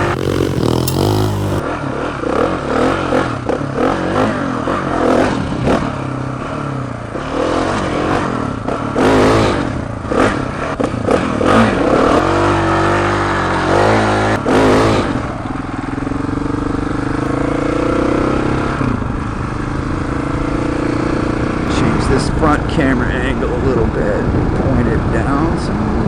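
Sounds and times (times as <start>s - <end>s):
motorcycle engine: 0.0s - 1.6s.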